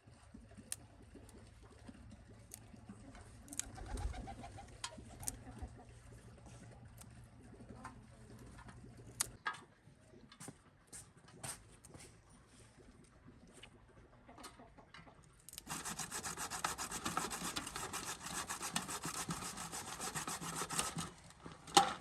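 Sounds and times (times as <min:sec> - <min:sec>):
pigeon cooing: 0:03.6 - 0:05.6.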